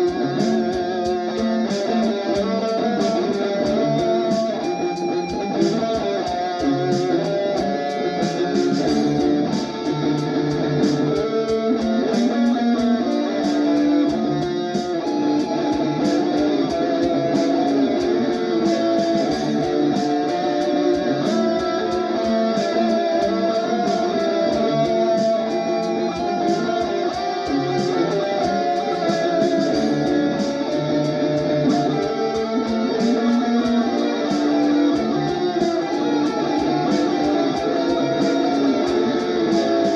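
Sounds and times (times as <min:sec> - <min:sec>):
drum machine beat: 0:00.0 - 0:39.9
electric guitar melodic lines: 0:00.0 - 0:39.9.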